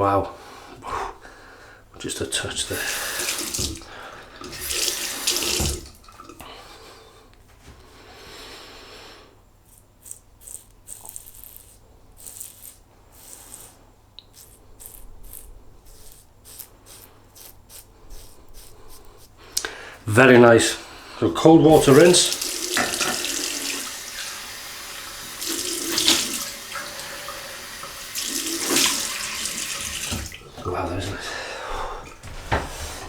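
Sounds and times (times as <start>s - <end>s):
tap water running into sink: 2.7s - 6.4s, 21.7s - 31.2s
water splashing: 2.7s - 6.4s, 21.7s - 31.0s.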